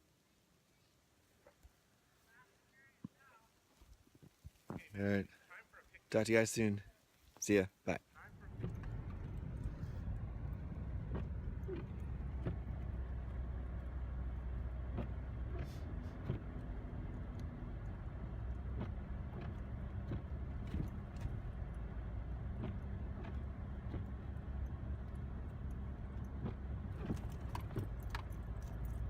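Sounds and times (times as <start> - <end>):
vehicle engine running: 8.2 - 29.0.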